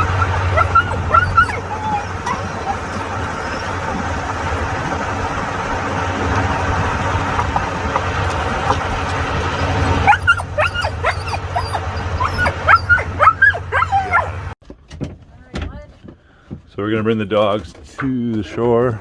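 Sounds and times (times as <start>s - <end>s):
dog whining and yipping: 0.0s - 4.3s, 9.6s - 14.6s
steady low drone: 0.0s - 14.6s.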